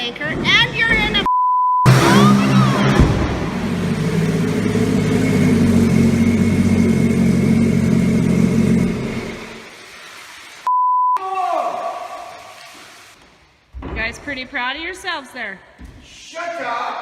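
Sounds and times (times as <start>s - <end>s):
motor engine humming: 1.9s - 9.6s.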